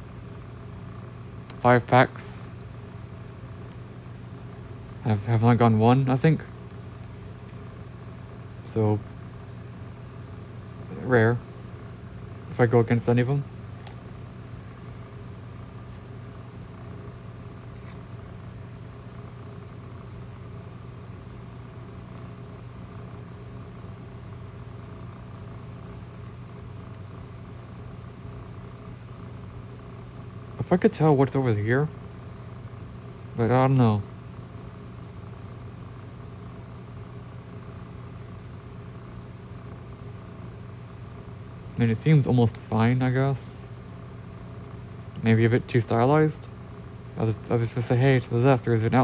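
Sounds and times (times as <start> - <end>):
low mechanical hum: 0.0 - 49.0
faint click: 13.8 - 14.0.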